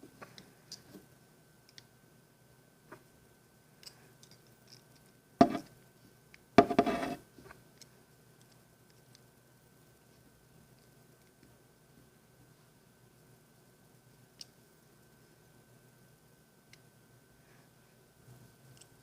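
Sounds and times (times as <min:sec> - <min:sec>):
wire scraping: 0:06.6 - 0:07.2.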